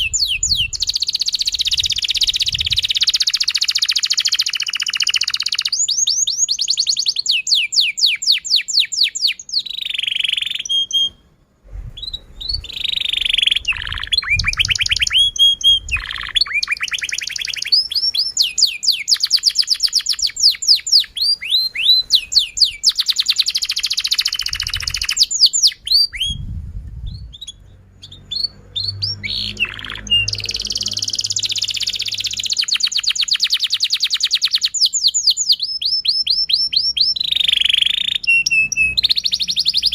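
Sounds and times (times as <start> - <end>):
canary singing trills: 0.0 - 11.3, 12.0 - 26.4, 27.1 - 39.9.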